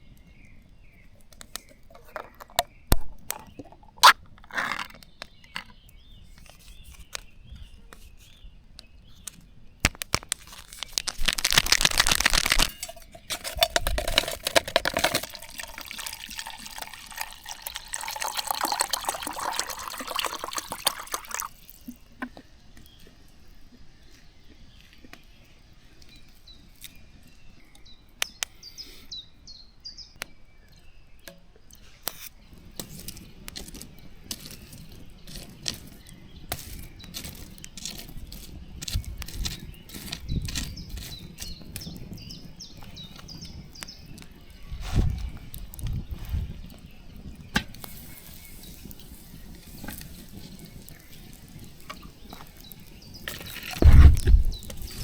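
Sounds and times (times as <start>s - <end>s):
water being poured: 10.4s - 22.0s, 47.8s - 55.0s
bird chirping: 24.0s - 55.0s.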